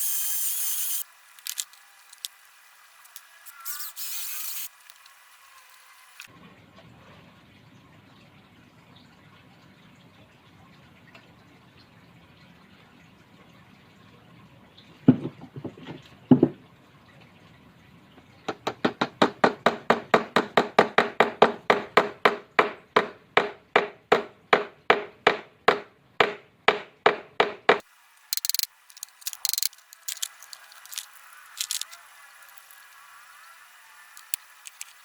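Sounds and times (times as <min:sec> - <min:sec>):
knocks on wood: 0:15.1 - 0:16.6.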